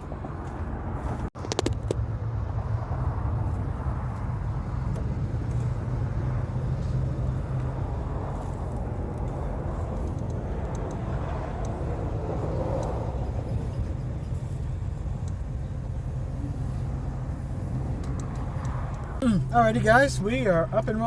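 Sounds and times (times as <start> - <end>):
diesel truck engine droning: 0.0 - 21.0
sharp clicks: 18.0 - 19.2.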